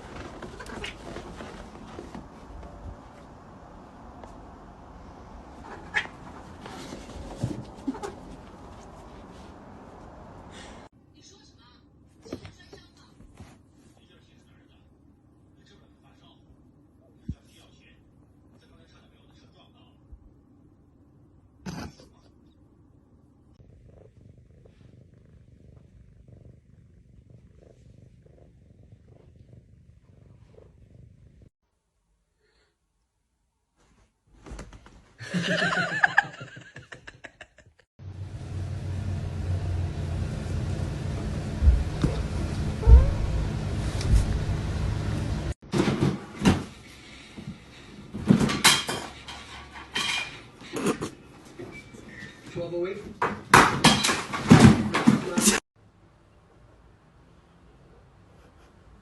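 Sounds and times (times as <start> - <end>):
cat purring: 13.5 - 31.5, 41.6 - 44.4
low rumbling: 38.0 - 45.6
sharp knocks and bangs: 53.2 - 55.4.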